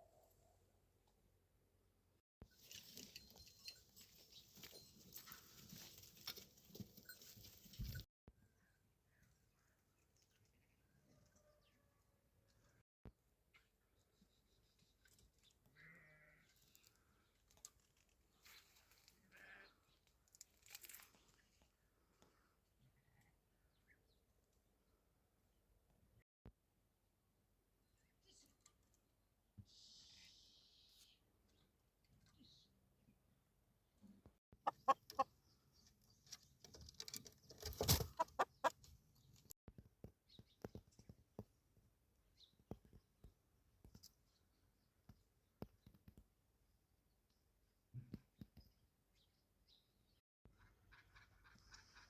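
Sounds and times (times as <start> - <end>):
sheep bleating: 15.8 - 16.5.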